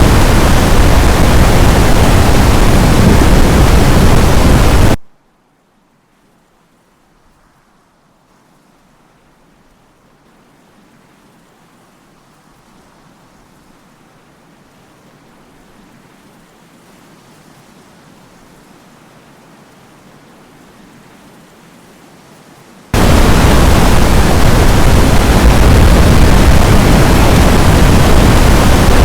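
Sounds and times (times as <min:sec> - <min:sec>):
steady rushing noise: 0:00.0 - 0:05.0, 0:23.0 - 0:29.0.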